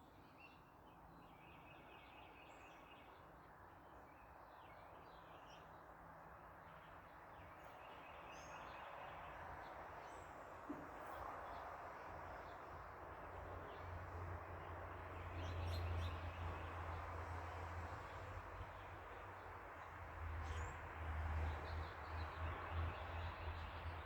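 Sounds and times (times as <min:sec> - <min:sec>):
traffic noise: 0:04.4 - 0:24.0.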